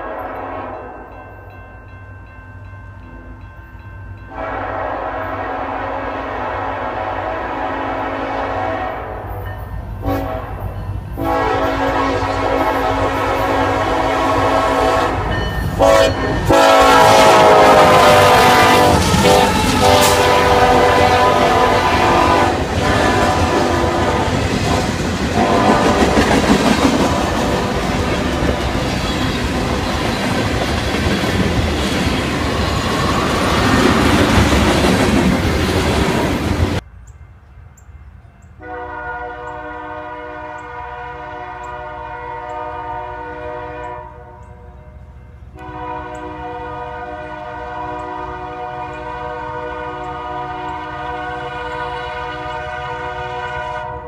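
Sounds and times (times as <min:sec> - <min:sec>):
locomotive air horn: 0:00.0 - 0:01.1, 0:04.3 - 0:09.4, 0:10.0 - 0:29.8, 0:38.6 - 0:54.0
freight train wheels clacking: 0:09.3 - 0:38.6.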